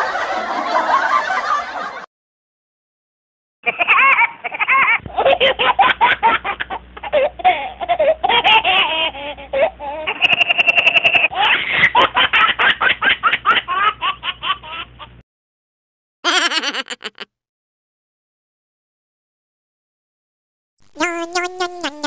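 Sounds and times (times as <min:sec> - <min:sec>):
baby giggling: 0:03.7 - 0:12.5, 0:16.3 - 0:17.2, 0:20.8 - 0:22.0
person laughing: 0:16.3 - 0:17.3.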